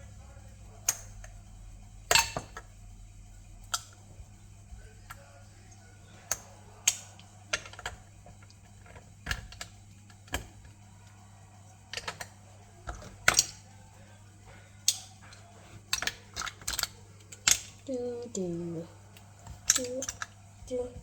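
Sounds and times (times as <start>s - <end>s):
plastic bricks clicking: 6.2s - 10.8s, 11.8s - 13.6s, 14.8s - 17.9s, 19.2s - 20.4s.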